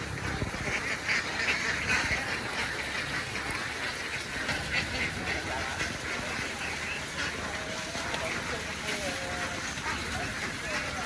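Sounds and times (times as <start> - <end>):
flock of ducks quacking: 0.0 - 11.0.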